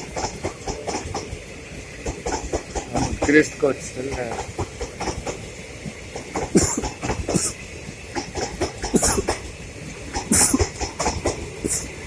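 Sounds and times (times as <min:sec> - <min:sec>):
train wheels clattering: 0:00.0 - 0:12.0
short sharp hissing bursts: 0:06.4 - 0:09.5, 0:10.2 - 0:12.0.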